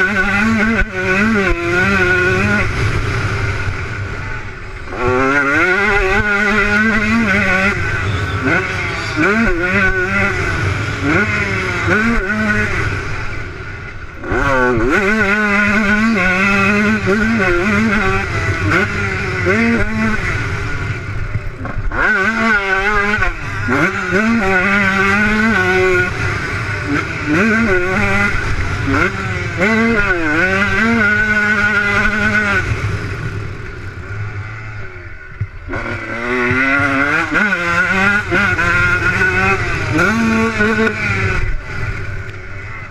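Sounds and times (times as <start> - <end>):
motocross bike engine revving: 0.0 - 42.9.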